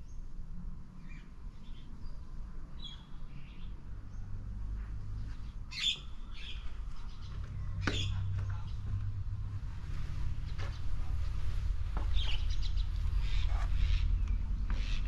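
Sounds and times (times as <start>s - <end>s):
birds chirping: 1.0s - 4.3s, 5.4s - 15.0s
low rumble: 6.2s - 14.8s.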